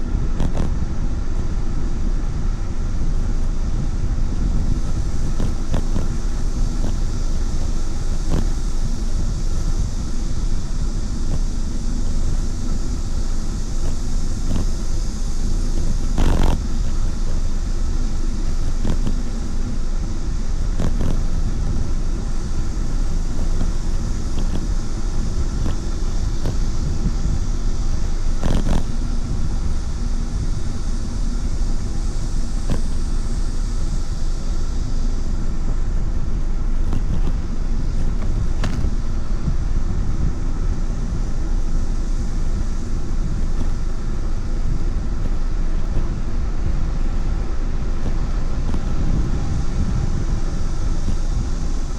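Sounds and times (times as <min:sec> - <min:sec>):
road rumble: 0:00.0 - 0:51.9
wind buffeting microphone: 0:00.0 - 0:51.9.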